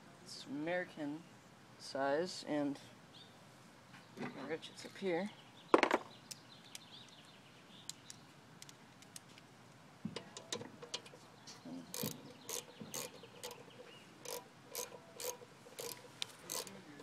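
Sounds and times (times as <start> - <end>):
ratchet wrench clicking: 11.9 - 16.8.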